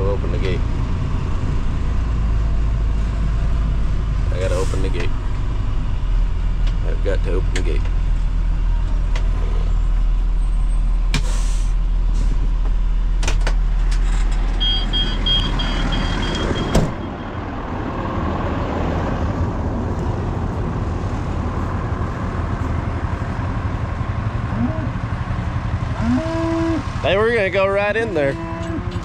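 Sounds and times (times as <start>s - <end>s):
vehicle idling hum: 0.0s - 29.0s
car door opening: 13.2s - 17.1s
rapid warning chime beeps: 14.6s - 17.4s
car door shutting: 16.2s - 17.0s.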